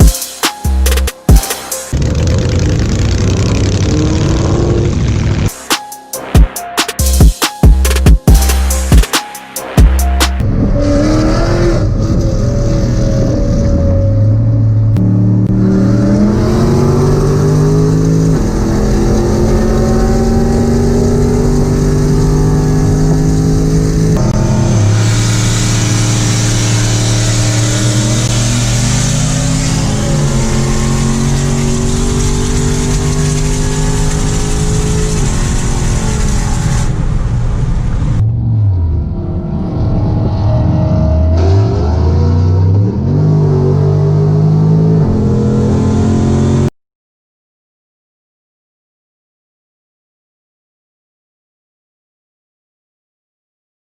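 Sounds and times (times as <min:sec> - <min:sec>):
vehicle engine accelerating hard: 0:01.8 - 0:05.6, 0:10.2 - 0:46.7.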